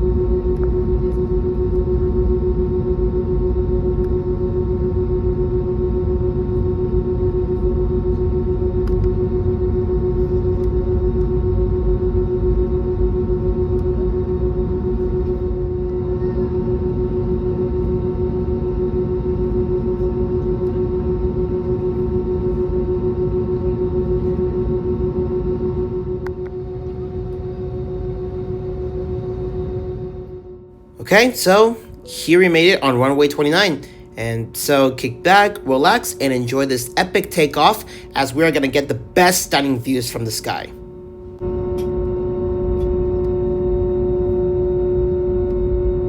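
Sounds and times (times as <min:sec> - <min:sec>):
jet engines idling hum: 0:00.0 - 0:46.0.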